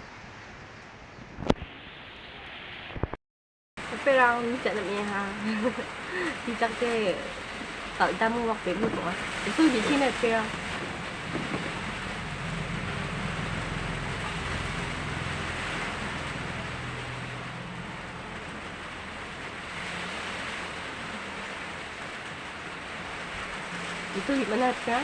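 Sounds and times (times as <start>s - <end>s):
heavy rain falling: 3.8s - 25.0s
low hum: 4.7s - 24.5s.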